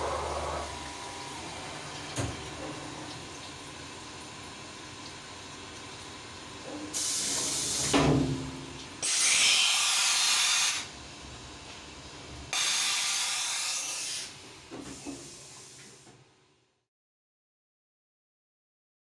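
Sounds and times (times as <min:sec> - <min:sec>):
compressed air hissing: 0:09.0 - 0:10.9, 0:12.6 - 0:16.0.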